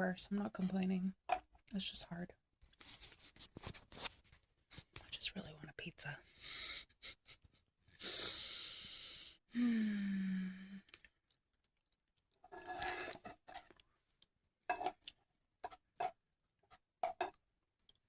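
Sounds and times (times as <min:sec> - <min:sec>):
person sighing: 0:08.0 - 0:11.0.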